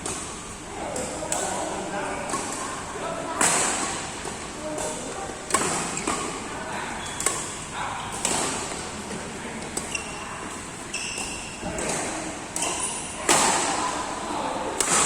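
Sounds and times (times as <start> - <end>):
short high squeaks: 9.8 - 10.3, 10.9 - 11.6
rackets hitting shuttlecock: 10.5 - 13.8, 14.7 - 15.0.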